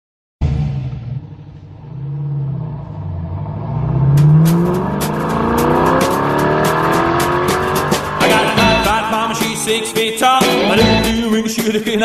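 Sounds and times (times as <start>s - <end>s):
car engine revving: 0.4s - 11.2s
steady drumbeat: 4.2s - 12.0s
song: 4.8s - 12.0s.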